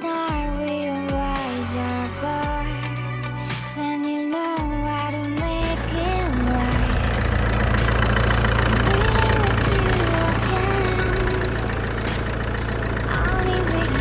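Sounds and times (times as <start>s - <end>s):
diesel engine idling: 5.5s - 14.0s.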